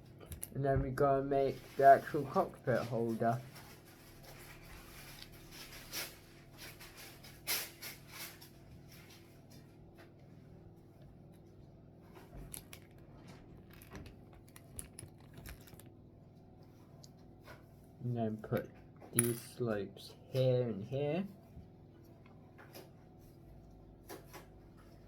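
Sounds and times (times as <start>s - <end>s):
faint room hum: 0.0s - 25.0s.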